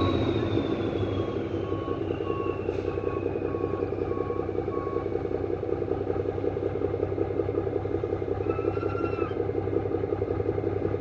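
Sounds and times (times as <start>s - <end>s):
faint whistling tone: 0.0s - 5.1s, 8.4s - 9.4s
truck engine running: 0.0s - 11.0s.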